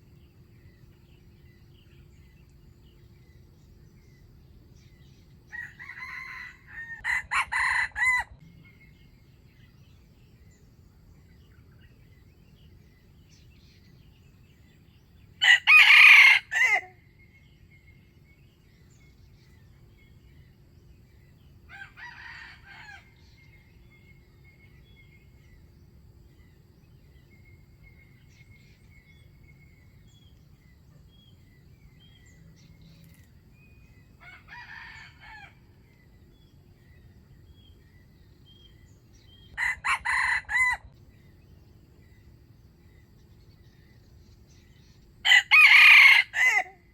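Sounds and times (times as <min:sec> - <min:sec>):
roosters crowing: 0:05.5 - 0:08.4, 0:15.4 - 0:17.0, 0:21.7 - 0:23.5, 0:34.2 - 0:35.8, 0:39.5 - 0:41.0, 0:45.2 - 0:46.9.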